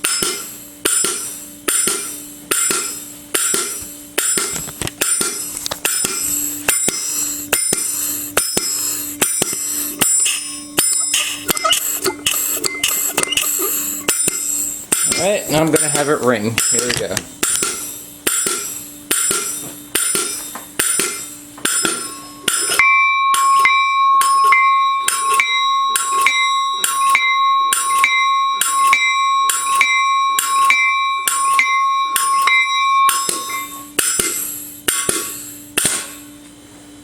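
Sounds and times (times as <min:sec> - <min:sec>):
locomotive bell ringing: 0:10.0 - 0:17.0, 0:21.7 - 0:34.6.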